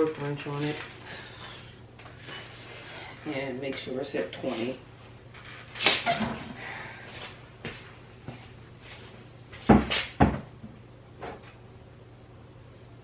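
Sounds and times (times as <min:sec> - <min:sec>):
tools rustling and scraping: 0:00.0 - 0:06.5.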